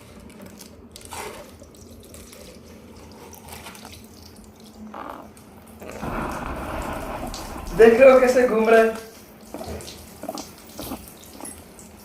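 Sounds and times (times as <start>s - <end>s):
water spurting and dripping: 0.0s - 12.0s.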